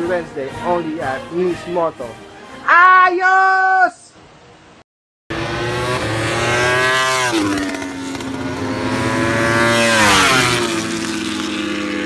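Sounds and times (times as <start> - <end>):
racing motorcycles passing: 5.3 - 12.0.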